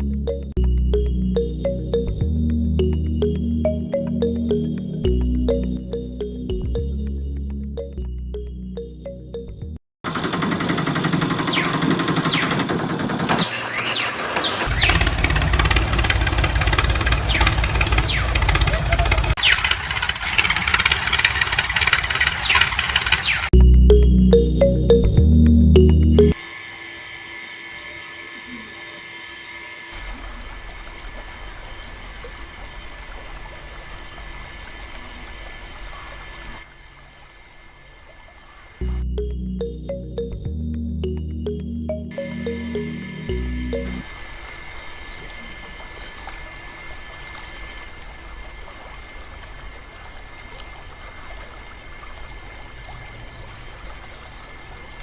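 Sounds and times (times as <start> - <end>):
low motor hum: 0.0 - 9.8, 14.7 - 19.4, 38.8 - 44.1
low rhythmic engine pulsing: 0.0 - 9.8, 38.8 - 44.0
water pouring and splashing: 30.0 - 38.8, 44.0 - 55.0.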